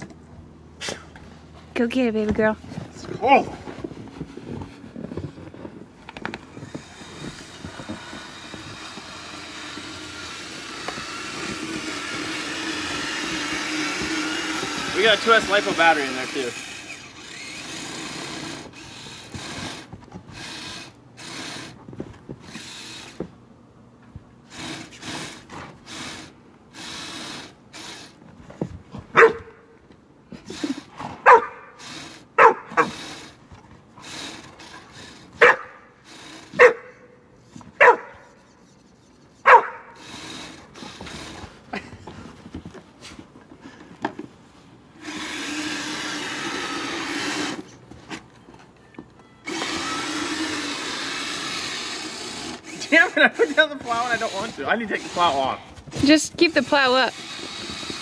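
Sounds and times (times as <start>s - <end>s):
dog barking: 29.1s - 29.6s, 31.2s - 31.8s, 32.4s - 32.9s, 35.4s - 35.8s, 36.6s - 37.0s, 37.8s - 38.2s, 39.4s - 40.0s.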